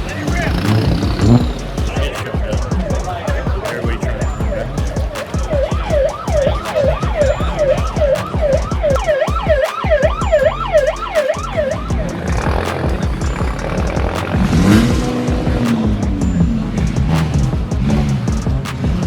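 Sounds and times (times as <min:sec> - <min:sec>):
thumping beat: 0:00.0 - 0:19.0
siren wailing: 0:04.2 - 0:17.4.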